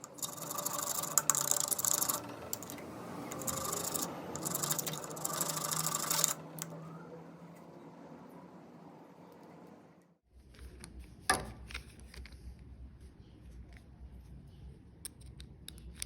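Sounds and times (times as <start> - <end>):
electric drill motor hum: 0.0 - 6.8.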